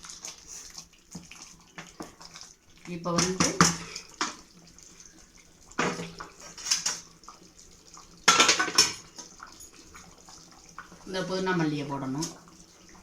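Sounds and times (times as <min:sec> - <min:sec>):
metal utensils clattering on pot: 0:05.8 - 0:07.1, 0:08.2 - 0:09.8.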